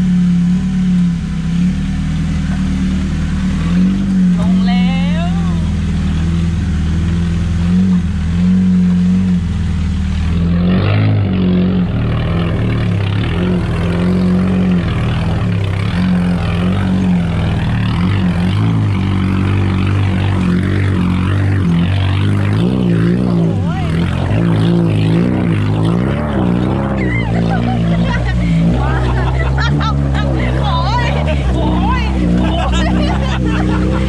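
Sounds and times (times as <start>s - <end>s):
off-road vehicle engine under load: 0.0s - 34.0s.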